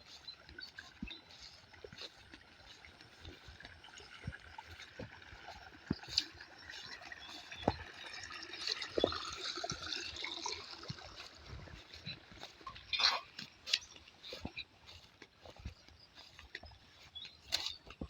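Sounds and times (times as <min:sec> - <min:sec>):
water trickling and gurgling: 0:00.0 - 0:18.0
small clicks and knocks: 0:17.3 - 0:18.0.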